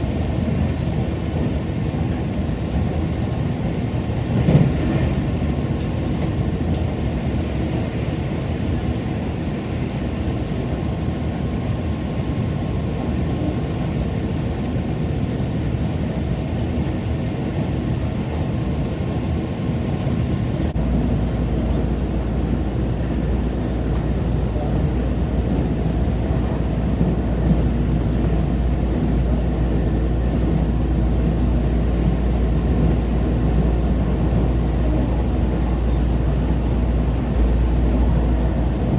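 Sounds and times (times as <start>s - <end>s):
train rumbling on rails: 0.0s - 11.5s, 20.0s - 38.9s.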